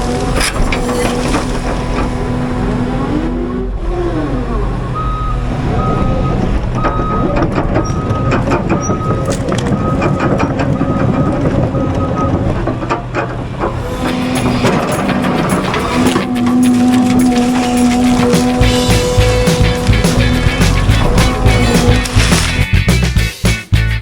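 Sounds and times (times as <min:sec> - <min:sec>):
diesel rumble of tracked machine: 0:00.0 - 0:24.0
backup alarm beeping: 0:04.5 - 0:12.7.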